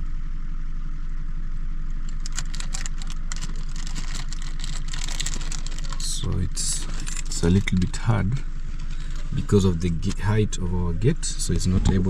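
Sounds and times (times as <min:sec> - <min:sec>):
engine idling: 0:00.0 - 0:12.0
rapid light clicking and rattling: 0:02.0 - 0:10.3.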